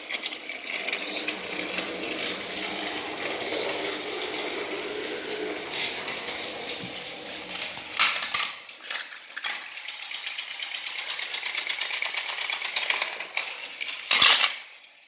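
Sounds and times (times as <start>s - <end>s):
toy train motor clattering: 0.0s - 15.0s.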